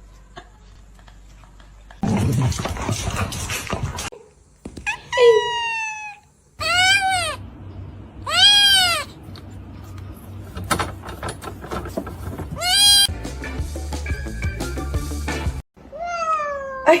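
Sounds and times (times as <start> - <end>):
cat meowing: 4.9 - 7.4, 8.2 - 9.2, 12.6 - 13.1, 15.9 - 16.9.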